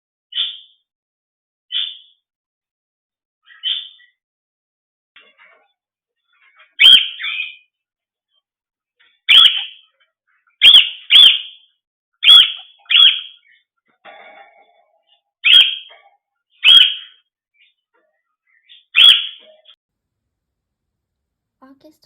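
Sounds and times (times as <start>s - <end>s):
pet bird shrill calls: 6.8s - 7.6s, 9.3s - 9.8s, 10.6s - 11.6s, 12.2s - 13.4s, 15.4s - 15.9s, 16.6s - 17.2s, 18.7s - 19.4s.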